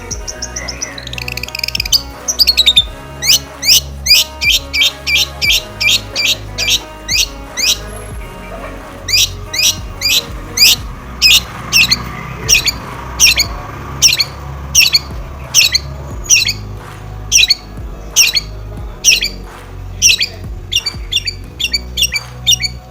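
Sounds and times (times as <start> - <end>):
bird giving harsh calls: 0.0 - 22.9
faint background music: 0.0 - 22.9.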